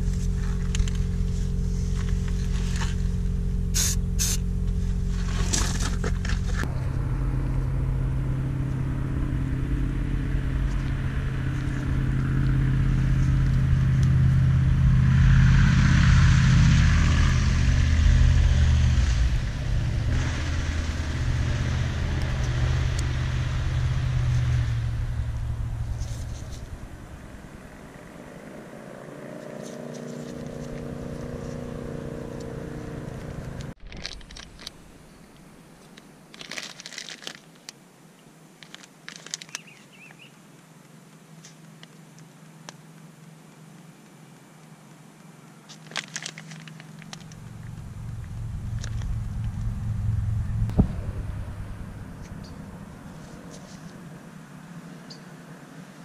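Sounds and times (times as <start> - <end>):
higher-pitched engine hum: 0.0 - 33.8, 46.6 - 56.0
vehicle engine running: 0.0 - 34.4, 46.2 - 56.0
plastic bag crinkling: 36.3 - 37.7, 38.6 - 39.8, 45.7 - 47.4.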